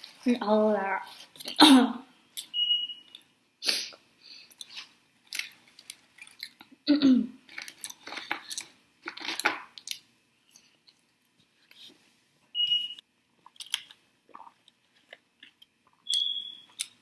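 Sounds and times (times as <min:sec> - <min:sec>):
person chewing: 0:03.1 - 0:06.8, 0:07.5 - 0:12.0, 0:13.4 - 0:17.0.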